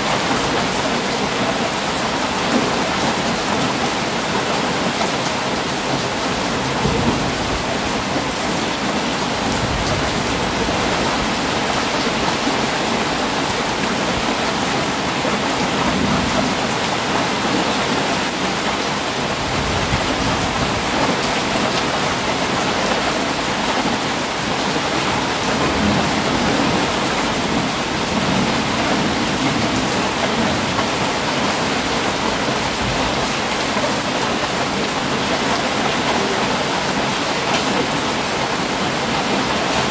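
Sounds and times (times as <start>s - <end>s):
heavy rain: 0.0s - 39.9s
thunder rumbling: 6.0s - 12.2s, 24.6s - 33.3s.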